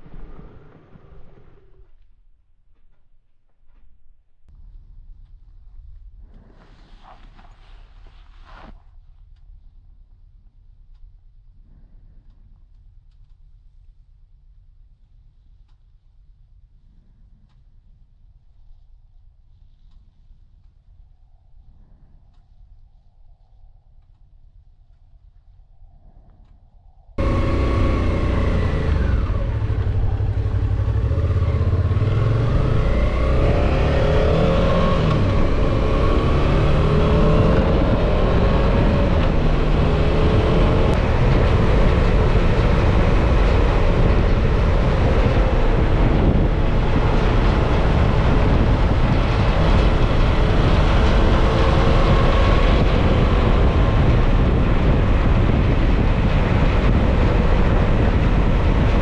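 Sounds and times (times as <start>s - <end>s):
wind and road noise: 0.0s - 13.8s, 14.8s - 59.0s
motorcycle engine running: 27.2s - 59.0s.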